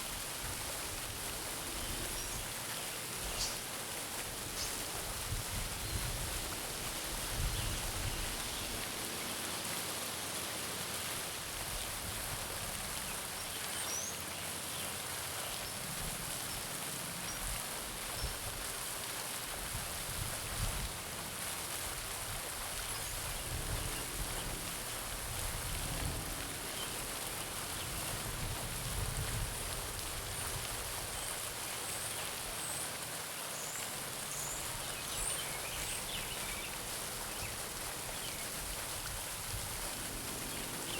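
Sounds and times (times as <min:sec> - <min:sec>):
fountain splashing into pond: 0:00.0 - 0:40.9.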